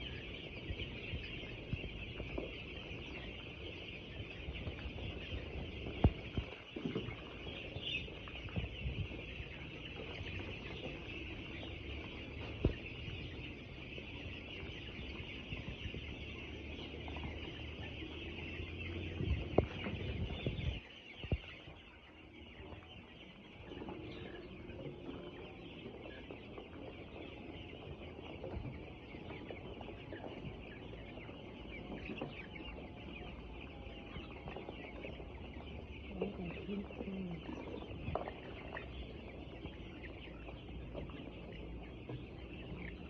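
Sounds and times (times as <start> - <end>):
chicks cheeping: 0.0 - 43.0
low rumble with knocks: 0.2 - 22.9.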